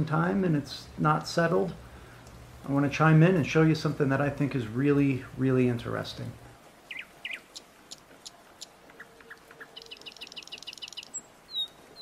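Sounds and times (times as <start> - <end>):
small birds chirping: 6.8 - 12.0
buzzy bird trill: 6.9 - 8.0, 8.6 - 12.0.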